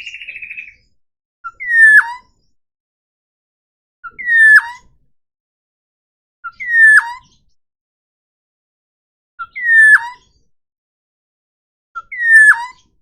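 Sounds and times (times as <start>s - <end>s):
bird calling with whistled notes: 0.0s - 2.6s, 4.0s - 4.9s, 6.5s - 7.5s, 9.4s - 10.4s, 12.0s - 13.0s.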